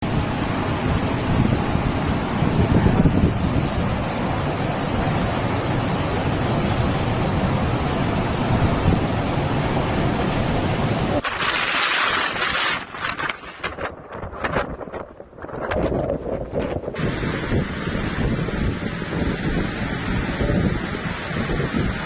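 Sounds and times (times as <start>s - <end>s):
heavy rain: 0.0s - 14.4s, 16.9s - 22.0s
wind blasting the microphone: 0.0s - 22.0s
faint crackles: 11.2s - 15.8s.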